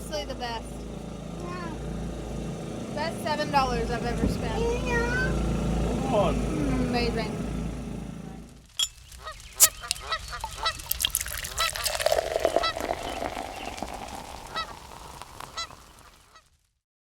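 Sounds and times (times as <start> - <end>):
waterfowl honking: 9.0 - 16.4.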